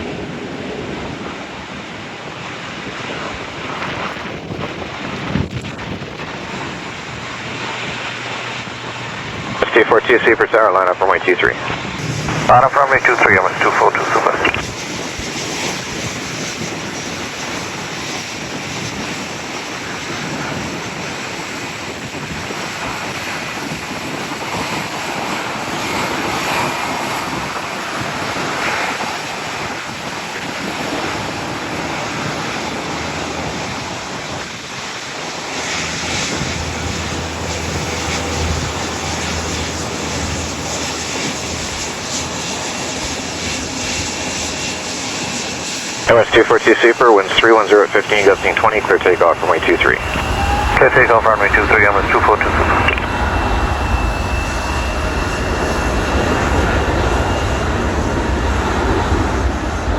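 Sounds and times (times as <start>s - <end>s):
wind buffeting microphone: 0.0s - 9.8s, 11.6s - 46.2s, 48.0s - 59.9s
jet engines idling: 3.3s - 59.9s
low engine hum: 35.4s - 46.4s.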